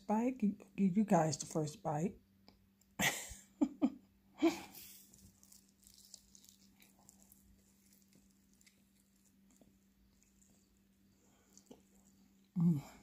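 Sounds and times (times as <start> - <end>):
low steady hum: 0.0 - 13.0
person biting and chewing food: 4.8 - 13.0
person murmuring: 12.6 - 13.0.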